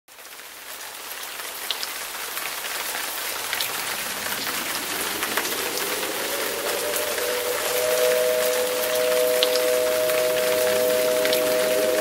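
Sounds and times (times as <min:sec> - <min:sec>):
rain pattering: 0:00.1 - 0:12.0
faint rising siren: 0:03.7 - 0:12.0.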